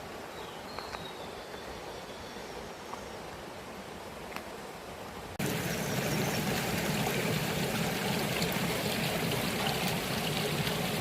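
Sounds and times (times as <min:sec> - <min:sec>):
stream running over rocks: 0:03.2 - 0:11.0.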